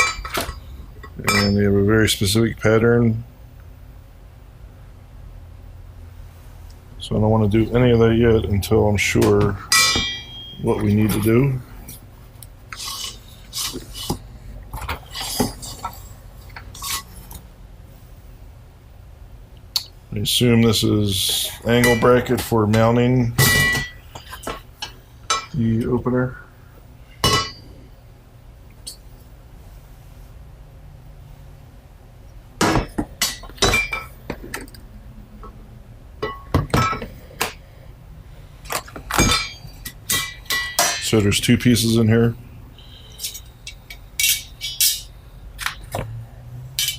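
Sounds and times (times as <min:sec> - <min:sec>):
metal parts clinking and rattling: 0:38.6 - 0:41.3, 0:43.2 - 0:46.0.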